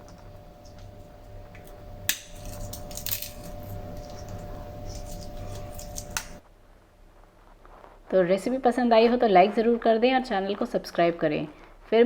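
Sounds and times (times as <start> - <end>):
breadsticks crunching and cracking: 0.0 - 6.4.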